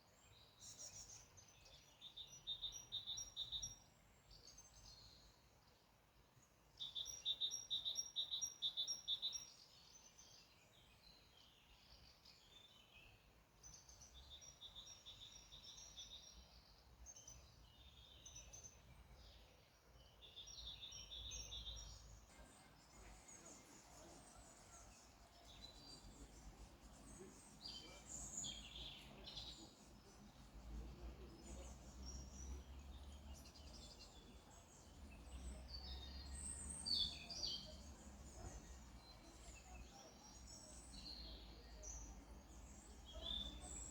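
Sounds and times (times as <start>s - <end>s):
songbirds chirping and trilling: 0.0s - 43.9s.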